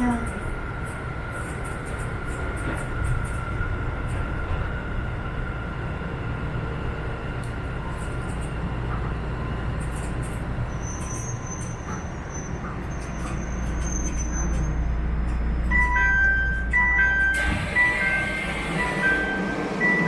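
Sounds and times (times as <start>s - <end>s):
subway train rumbling: 0.0s - 20.0s
electronic chime melody: 15.7s - 20.0s.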